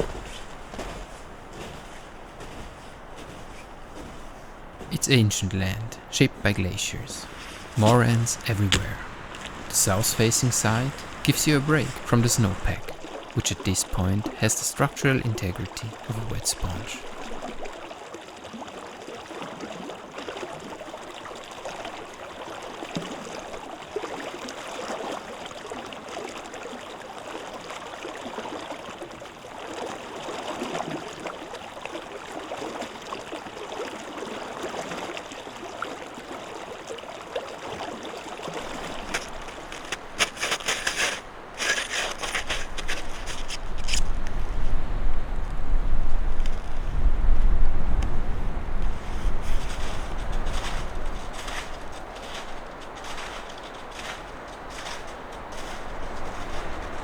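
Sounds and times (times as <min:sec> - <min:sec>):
stream running: 0:00.0 - 0:57.0
sharp rustling: 0:38.6 - 0:44.3, 0:48.9 - 0:57.0.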